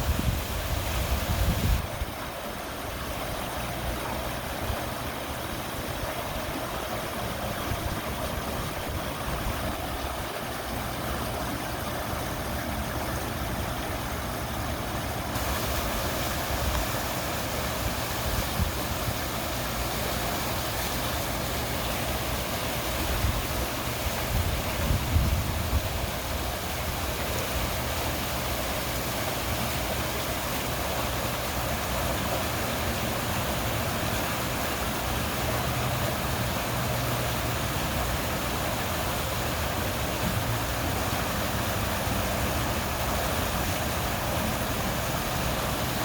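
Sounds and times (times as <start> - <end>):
wind buffeting microphone: 0.0 - 2.2, 24.2 - 26.2
running water rushing and babbling: 0.0 - 46.0.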